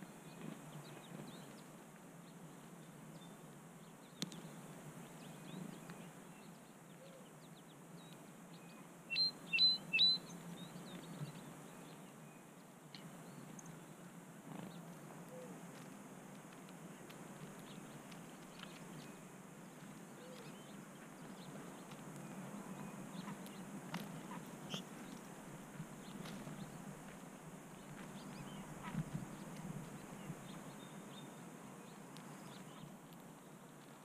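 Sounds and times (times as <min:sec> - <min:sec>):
small birds chirping: 0:00.0 - 0:15.9, 0:16.5 - 0:34.0
loud high bird chirps: 0:09.1 - 0:10.4.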